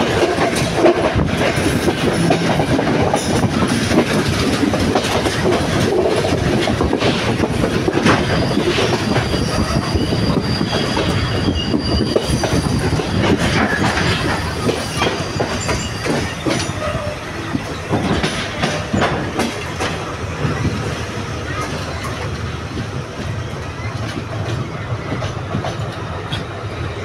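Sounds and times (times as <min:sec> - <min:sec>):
wheels clicking over rail joints: 0:00.0 - 0:09.8, 0:12.1 - 0:20.1
train wheels rumbling on rails: 0:00.0 - 0:27.0
high wheel squeal: 0:08.0 - 0:19.0.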